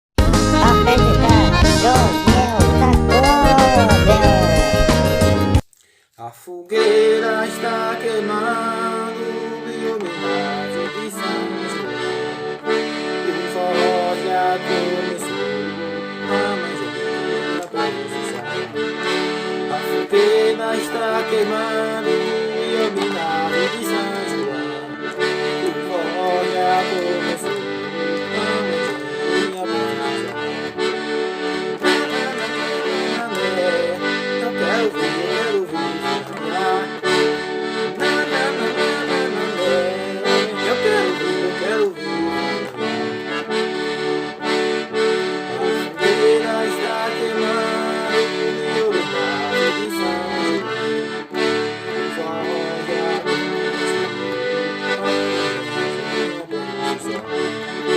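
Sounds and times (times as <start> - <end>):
accordion playing: 0.0 - 5.9, 6.7 - 57.9
percussion: 0.2 - 5.9.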